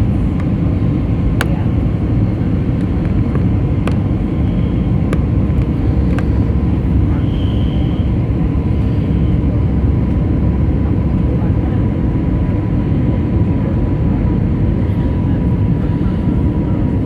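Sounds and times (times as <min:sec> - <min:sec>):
airliner engine and airflow rumble: 0:00.0 - 0:17.0.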